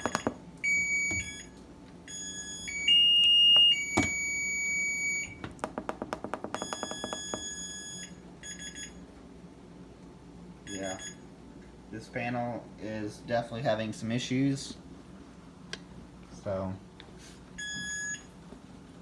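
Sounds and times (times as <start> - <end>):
washer control panel beeping: 0.0 - 5.6, 6.5 - 8.9.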